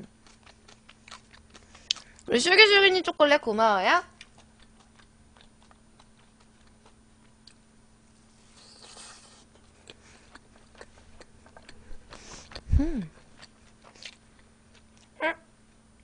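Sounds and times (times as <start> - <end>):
wet chewing mouth noises: 0.0 - 2.3, 4.1 - 7.7, 8.3 - 15.2
hum falling in pitch: 12.6 - 13.2.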